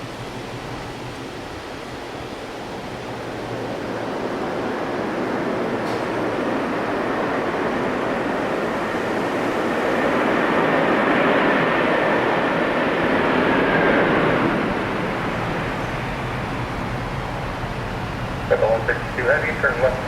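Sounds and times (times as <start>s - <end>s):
jet engines rumbling: 0.0s - 20.0s
faint high whine: 12.3s - 20.0s.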